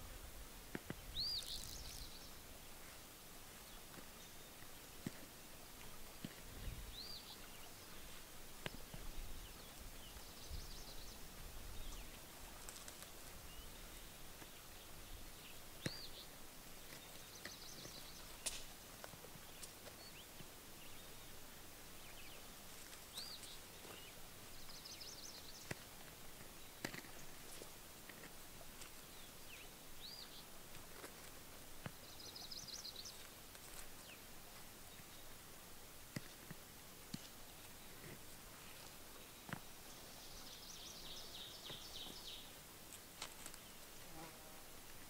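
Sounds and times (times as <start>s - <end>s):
faint low rumbles: 0.0s - 45.0s
songbird singing with buzzy trill: 0.9s - 2.4s, 6.6s - 12.2s, 13.4s - 18.6s, 19.4s - 25.9s, 28.9s - 30.5s, 31.9s - 33.3s, 38.6s - 42.6s.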